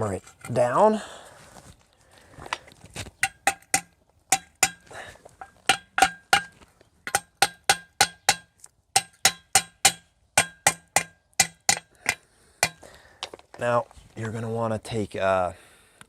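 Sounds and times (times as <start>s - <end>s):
hammer striking steel bolts: 3.2s - 4.8s, 5.4s - 12.8s.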